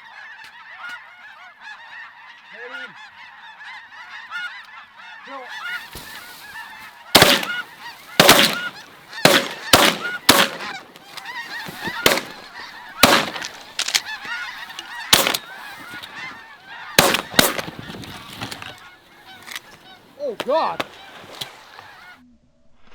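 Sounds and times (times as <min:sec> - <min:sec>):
geese honking: 0:00.2 - 0:22.2
shotgun blasts: 0:07.2 - 0:14.4, 0:15.0 - 0:16.3, 0:17.0 - 0:18.8.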